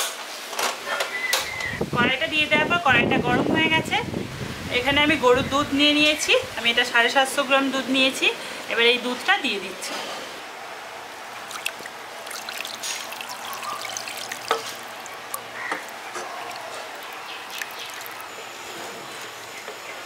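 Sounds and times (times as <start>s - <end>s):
milk pouring into pan: 11.4s - 18.3s.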